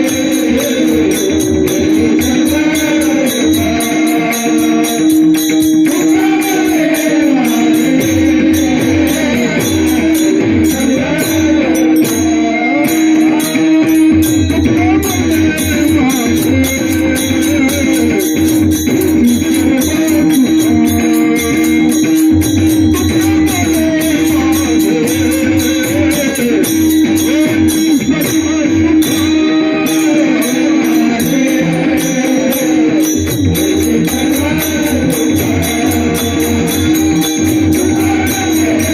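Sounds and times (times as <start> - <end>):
drum strokes: 0.0 - 38.9
hand cymbals jingling: 0.0 - 38.9
man singing devotional melody: 0.0 - 38.9.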